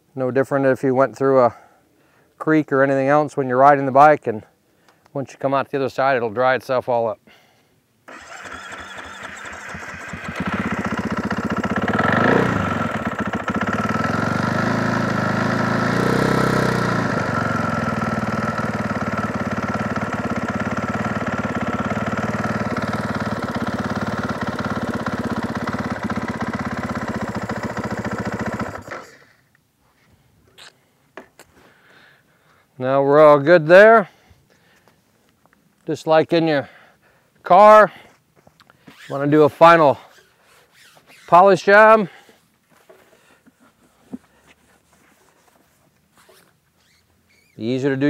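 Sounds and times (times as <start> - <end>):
motorcycle engine revving: 8.1 - 29.2.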